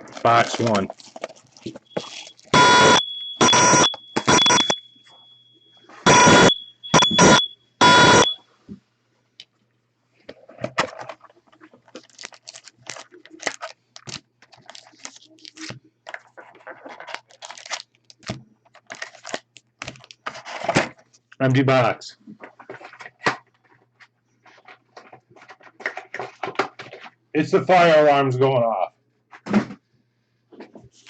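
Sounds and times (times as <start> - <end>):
fire alarm blaring: 1.8 - 8.4
steady high beep: 1.9 - 8.4.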